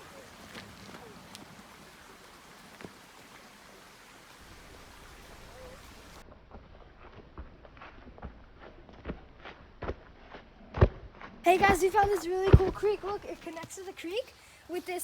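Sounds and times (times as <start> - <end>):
footsteps crunching: 0.0 - 1.8, 11.5 - 15.0
creek flowing: 0.0 - 6.2, 11.5 - 15.0.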